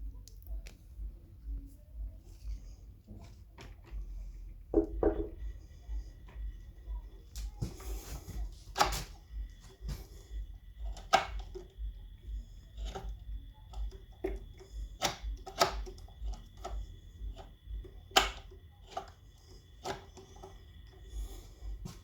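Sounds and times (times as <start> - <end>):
knocks and clicks of motor parts: 4.7 - 21.0.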